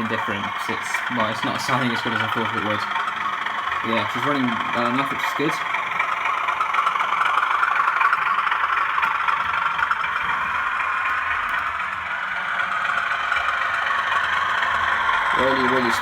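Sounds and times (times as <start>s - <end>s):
model locomotive diesel engine sound: 0.0s - 16.0s
speaker buzzing and rattling: 0.0s - 16.0s.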